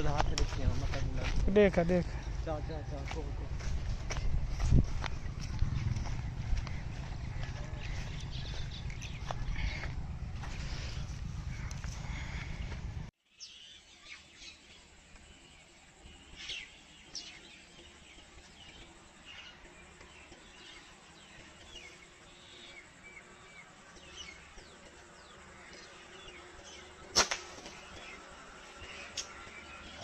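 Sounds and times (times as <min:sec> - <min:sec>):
small birds chirping: 0:00.0 - 0:30.0
loud rumbling noise: 0:02.1 - 0:13.1.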